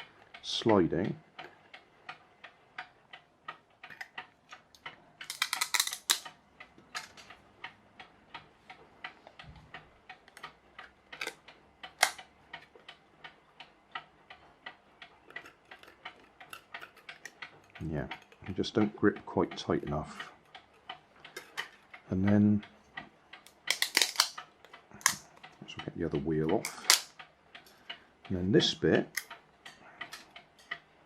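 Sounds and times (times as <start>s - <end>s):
mechanical clock ticking: 0.0s - 31.0s
clicks of parts handled: 5.2s - 7.3s, 11.2s - 11.4s, 21.3s - 21.8s, 23.4s - 24.4s, 26.6s - 27.1s.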